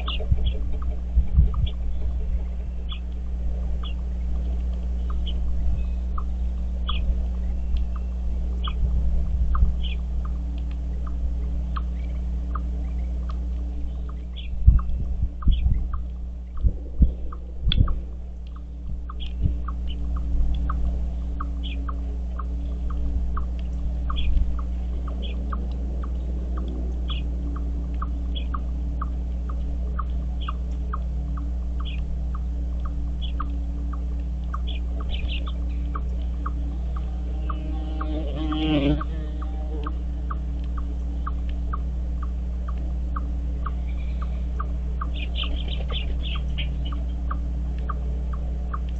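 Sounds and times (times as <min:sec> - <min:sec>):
birds chirping: 0:00.0 - 0:48.9
steady low hum: 0:00.0 - 0:48.9
higher bird chirps: 0:33.2 - 0:39.6, 0:43.2 - 0:48.8.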